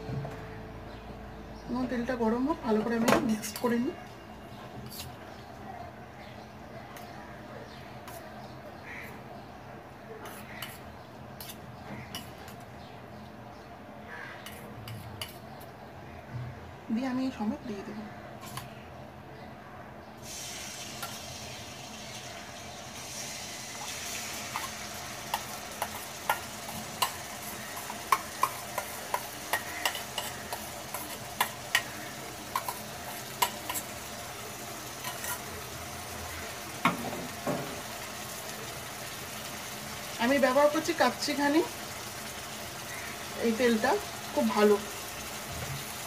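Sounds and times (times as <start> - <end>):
prawns sizzling in oil: 10.2 - 12.8, 20.2 - 46.0
spatula scraping a pan: 23.8 - 34.0, 35.0 - 35.6.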